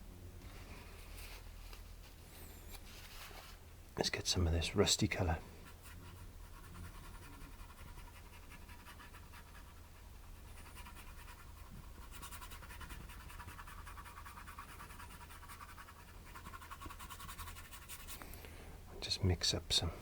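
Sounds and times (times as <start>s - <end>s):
paintbrush scrubbing on canvas: 5.2s - 18.2s.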